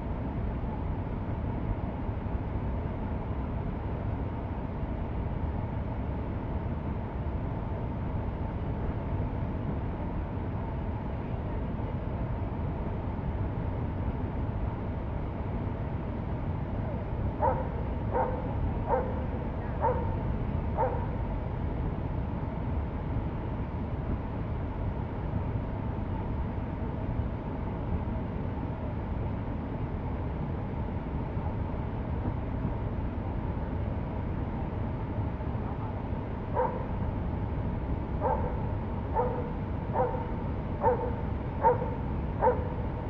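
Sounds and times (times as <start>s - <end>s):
dog barking: 17.4s - 20.2s, 20.8s - 21.2s, 36.6s - 36.9s, 38.2s - 42.8s.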